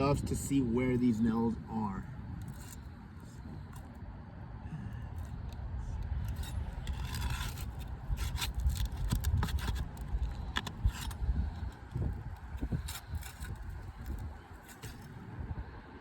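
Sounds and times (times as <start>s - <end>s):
flat bar scraping under shingles: 6.1s - 15.2s.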